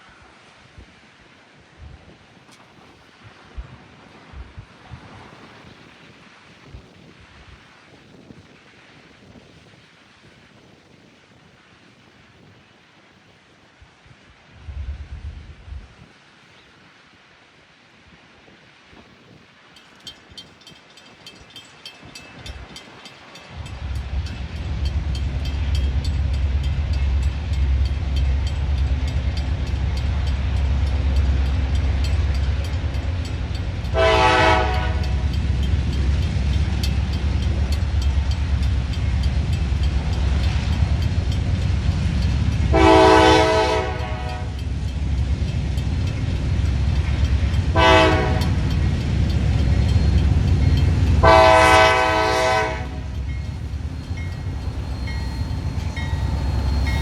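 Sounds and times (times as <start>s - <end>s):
diesel locomotives rumbling: 19.6s - 57.0s
train horn: 33.8s - 35.4s, 42.7s - 44.6s, 47.7s - 48.7s, 51.1s - 53.4s.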